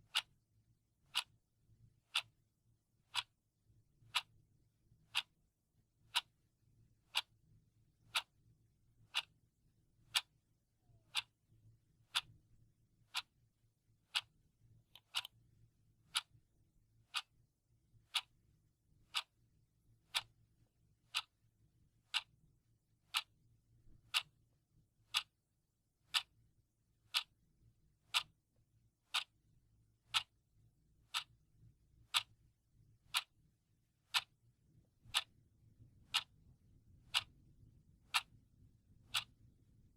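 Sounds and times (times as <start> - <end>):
clock ticking: 0.0 - 0.4, 1.1 - 1.3, 2.1 - 2.3, 3.1 - 3.3, 4.0 - 4.3, 5.1 - 5.3, 6.1 - 6.3, 7.1 - 7.3, 8.1 - 8.4, 9.1 - 9.3, 10.1 - 10.3, 11.0 - 11.3, 12.0 - 12.3, 13.1 - 13.3, 14.0 - 14.3, 14.9 - 15.4, 16.1 - 16.4, 17.1 - 17.3, 18.0 - 18.3, 19.0 - 19.4, 20.1 - 20.3, 21.0 - 21.4, 22.1 - 22.3, 23.1 - 23.3, 24.0 - 24.4, 25.1 - 25.3, 26.1 - 26.3, 27.1 - 27.3, 28.1 - 28.4, 29.1 - 29.4, 30.1 - 30.4, 31.1 - 31.4, 32.1 - 32.4, 33.1 - 33.3, 34.1 - 34.4, 35.0 - 35.3, 36.1 - 36.4, 37.0 - 37.3, 38.1 - 38.3, 39.0 - 39.4.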